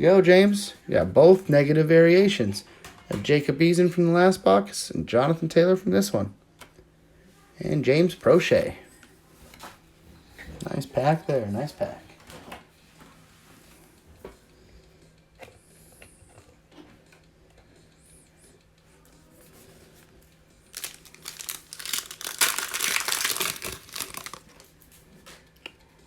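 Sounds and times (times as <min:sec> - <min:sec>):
foil wrapper crinkling: 0:20.7 - 0:24.8.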